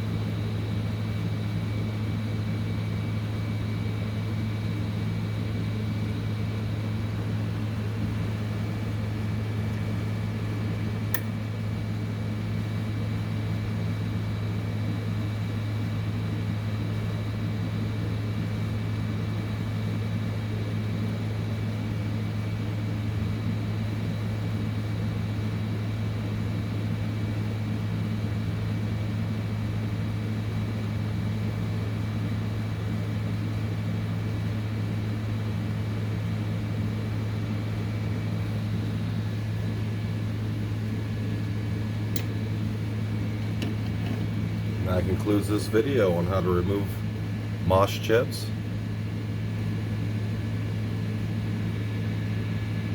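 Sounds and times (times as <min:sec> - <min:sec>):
heat gun blower humming: 0:06.0 - 0:12.0, 0:37.2 - 0:52.9
heat gun click: 0:11.1 - 0:11.3, 0:42.1 - 0:42.4.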